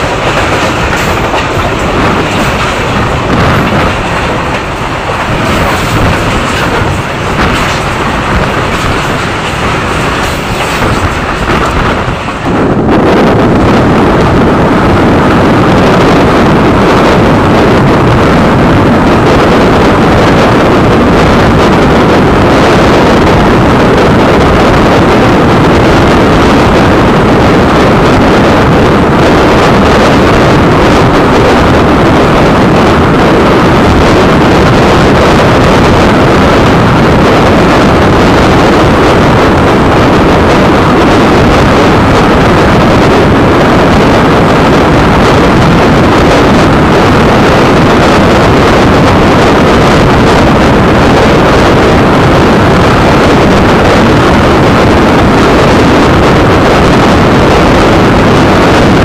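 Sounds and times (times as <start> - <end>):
train wheels rumbling over bridge: 0.0 - 58.8
wind buffeting microphone: 0.0 - 59.0.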